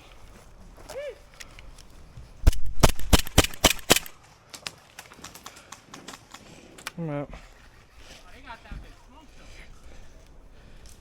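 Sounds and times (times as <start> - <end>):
airsoft gun shots: 2.5 - 4.2.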